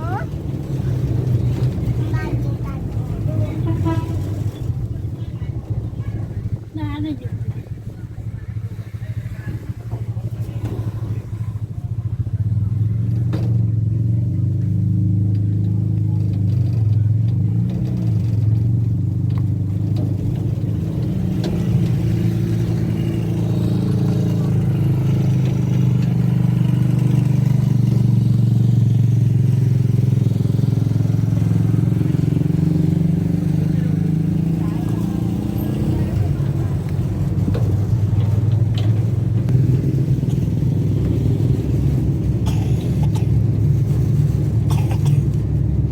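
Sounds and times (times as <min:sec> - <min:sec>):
vehicle engine low drone: 0:00.0 - 0:45.9.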